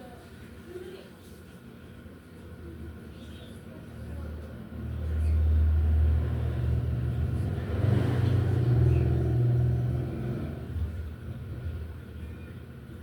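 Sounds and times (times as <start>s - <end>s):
vehicle engine rumbling past: 4.8s - 12.2s.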